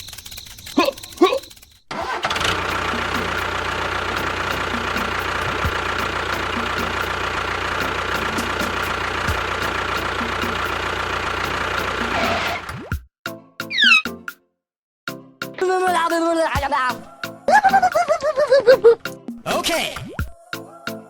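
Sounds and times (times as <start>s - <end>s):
engine idling with knock: 2.2s - 12.7s.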